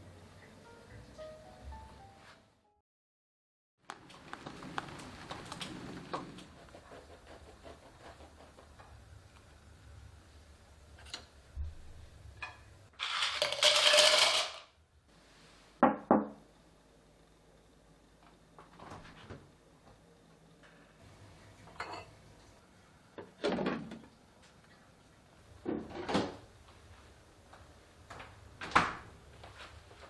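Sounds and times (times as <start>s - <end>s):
containers clattering and rustling: 13.0s - 14.6s.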